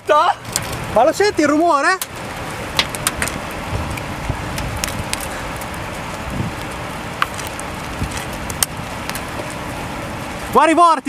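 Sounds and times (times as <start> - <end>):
tornado roar: 0.0 - 11.0
wind on microphone: 2.2 - 10.5.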